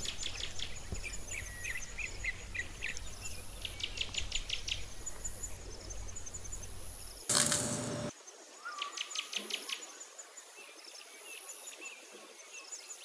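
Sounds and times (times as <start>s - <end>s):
small birds singing and chirping: 0.0s - 7.7s.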